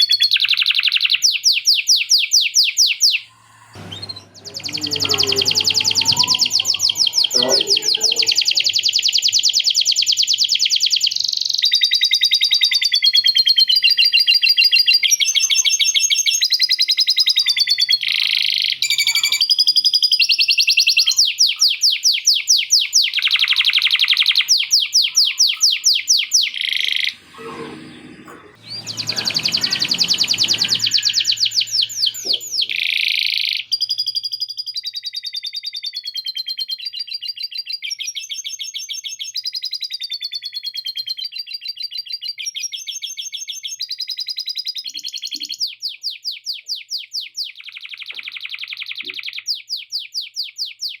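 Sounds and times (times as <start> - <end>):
canary singing fast trills: 17.4 - 27.2.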